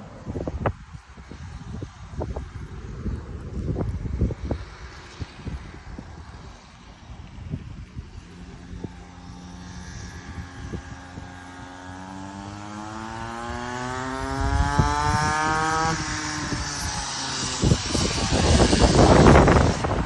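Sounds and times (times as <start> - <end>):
dirt bike engine accelerating: 7.9 - 20.0.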